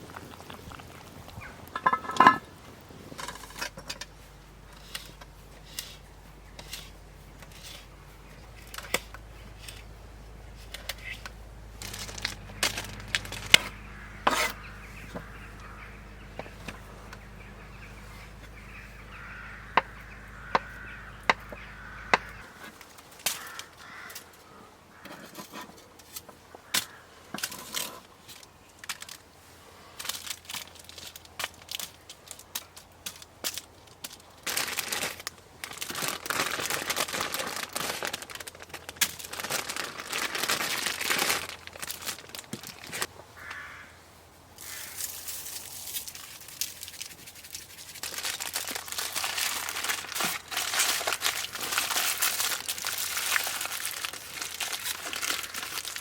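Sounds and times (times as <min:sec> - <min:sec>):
low steady hum: 0:00.0 - 0:23.1
campfire crackling: 0:00.0 - 0:24.3, 0:28.4 - 0:56.0.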